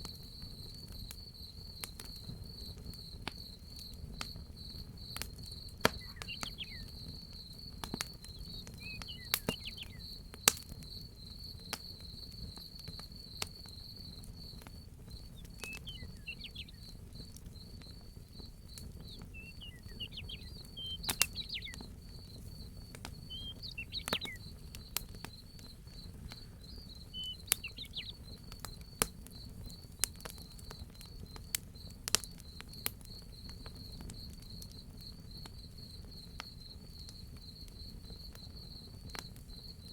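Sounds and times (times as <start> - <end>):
crickets chirping: 0.0 - 39.9
wood fire crackling and popping: 0.0 - 39.9
bird chirping: 5.8 - 7.2, 8.2 - 10.1, 15.1 - 28.5.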